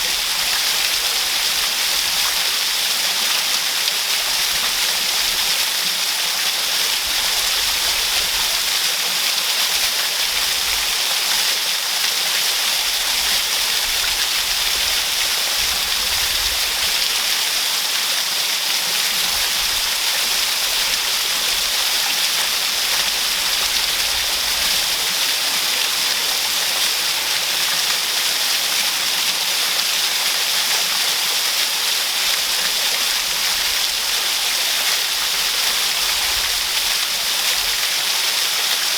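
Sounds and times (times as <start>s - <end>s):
waterfall rushing: 13.4s - 38.9s.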